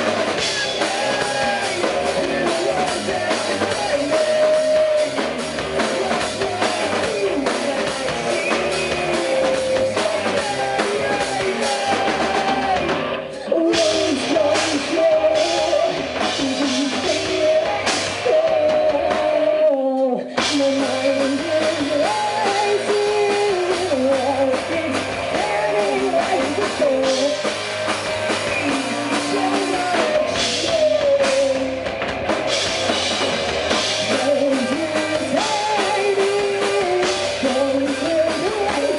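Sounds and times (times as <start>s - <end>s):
rock band playing: 0.0s - 38.9s.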